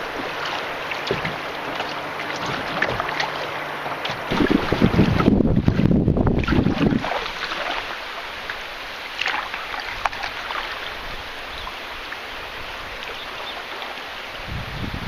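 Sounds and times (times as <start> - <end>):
sharp splash: 0.0 - 10.9
river water flowing and splashing: 0.0 - 15.0.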